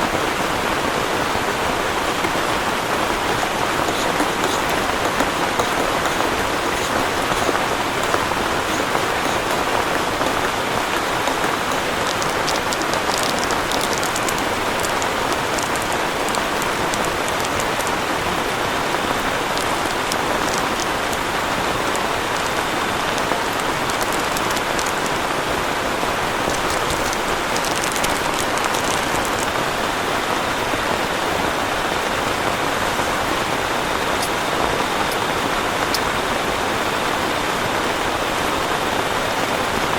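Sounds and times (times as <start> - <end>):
heavy rain falling: 0.0 - 39.9
sharp raindrop hits: 2.2 - 29.7.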